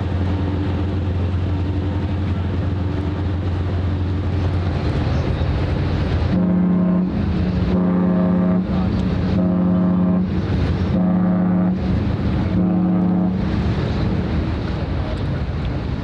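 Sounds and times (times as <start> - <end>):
water noise: 0.0 - 16.0
wind: 0.0 - 16.0
ship's horn short blasts: 6.0 - 14.4.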